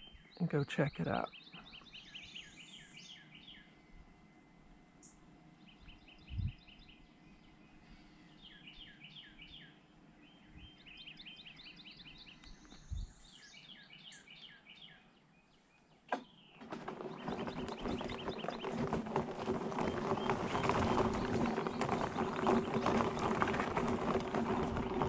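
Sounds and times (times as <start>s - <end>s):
bird chirping: 0.0s - 3.8s, 5.0s - 18.8s
low bumps: 16.6s - 25.0s.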